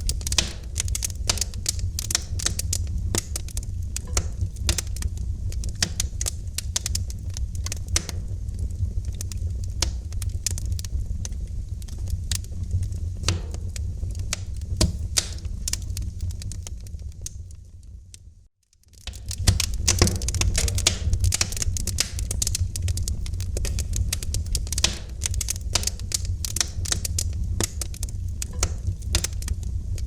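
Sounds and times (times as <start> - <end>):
wood fire crackling: 0.0 - 30.0
low rumble: 19.3 - 30.0.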